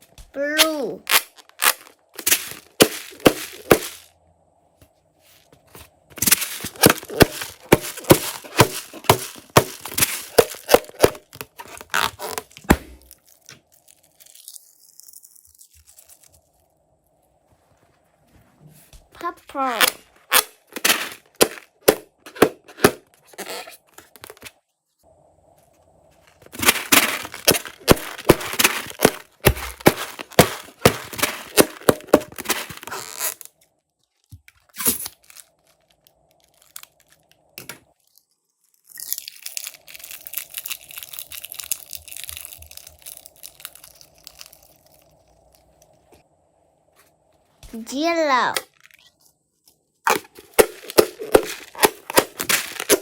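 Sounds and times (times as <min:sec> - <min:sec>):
slime crackling and popping: 0:06.2 - 0:16.4, 0:26.5 - 0:33.5, 0:38.8 - 0:45.9, 0:50.1 - 0:53.0.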